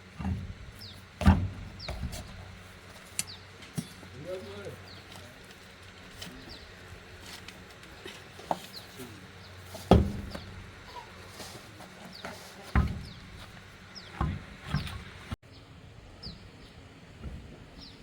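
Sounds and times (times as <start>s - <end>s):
tools knocking and clunking: 0.0s - 4.1s, 9.7s - 11.3s, 12.0s - 15.4s
small birds chirping: 0.6s - 18.0s.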